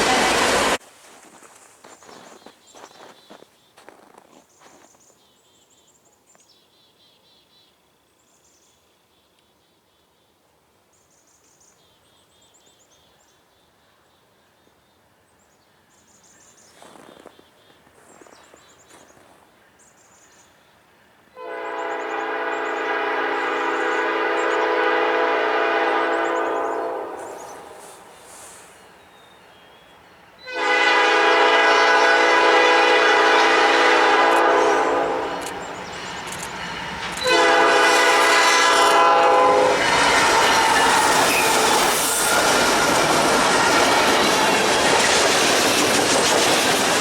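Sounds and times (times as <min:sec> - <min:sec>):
locomotive air horn blast: 0:21.4 - 0:28.8, 0:30.4 - 0:44.7.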